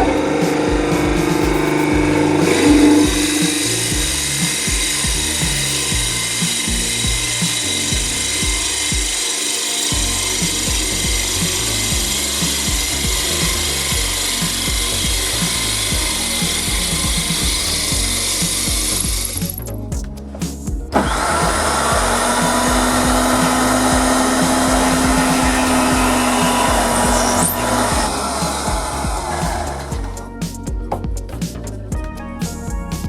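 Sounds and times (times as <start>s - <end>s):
wood lathe running: 0.0s - 19.4s, 21.0s - 30.2s
gouge cutting wood on lathe: 1.8s - 19.0s, 21.0s - 30.0s.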